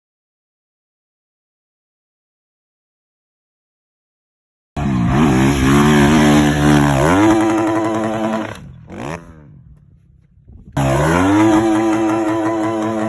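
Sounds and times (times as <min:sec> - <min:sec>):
dirt bike engine revving: 0:04.8 - 0:13.0.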